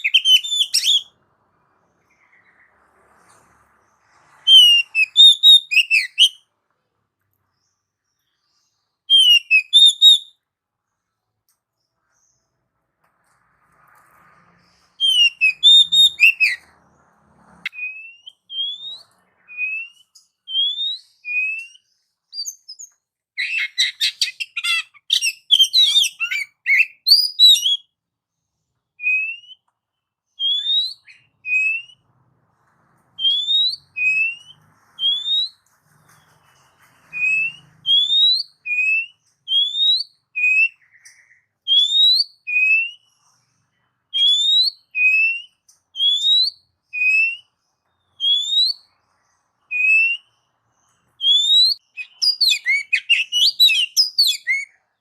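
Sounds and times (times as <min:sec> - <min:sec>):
bird singing whistled notes: 0:00.0 - 0:01.2, 0:04.3 - 0:06.5, 0:08.2 - 0:10.4, 0:15.0 - 0:16.7, 0:17.7 - 0:28.0, 0:29.0 - 0:29.7, 0:30.3 - 0:32.0, 0:33.2 - 0:43.4, 0:44.1 - 0:54.9.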